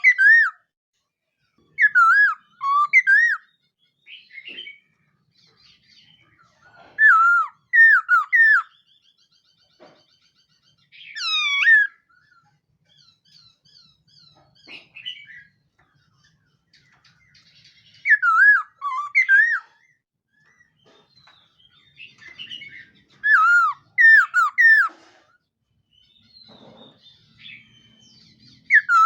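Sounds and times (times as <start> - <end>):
bird singing whistled phrases: 0.0 - 0.6, 1.8 - 3.5, 7.0 - 8.8, 17.9 - 19.7, 22.3 - 24.9, 27.4 - 29.0.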